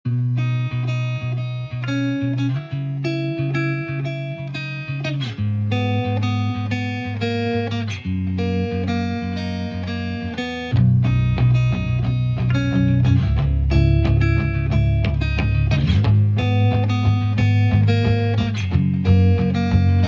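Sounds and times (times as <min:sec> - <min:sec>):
plucked guitar music: 0:00.1 - 0:20.0
bass line: 0:10.7 - 0:20.0.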